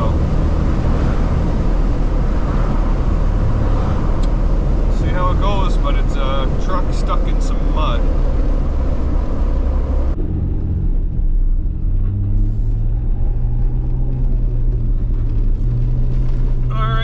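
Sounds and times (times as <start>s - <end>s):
car engine droning: 0.0s - 17.0s.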